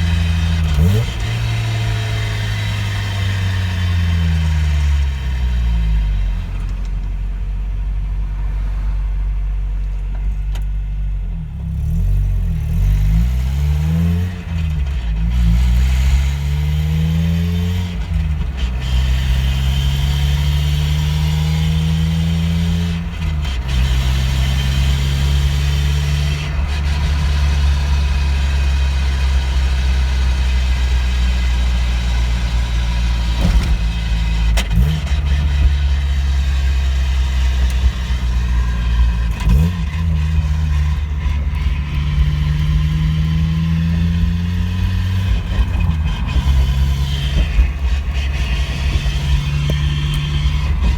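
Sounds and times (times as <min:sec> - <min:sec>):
car engine revving: 0:00.0 - 0:06.3, 0:11.6 - 0:50.9
drivetrain noise: 0:45.2 - 0:50.9.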